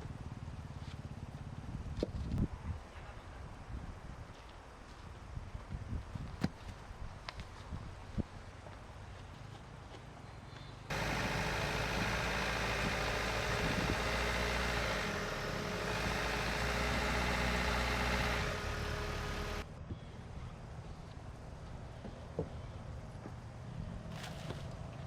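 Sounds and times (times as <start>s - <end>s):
machine humming: 10.9s - 19.6s.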